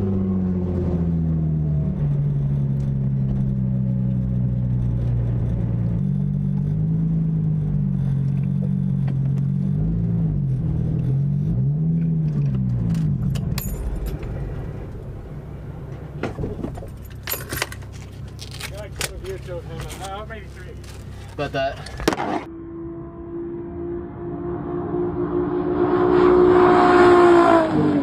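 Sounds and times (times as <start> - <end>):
car engine running: 0.0 - 22.5.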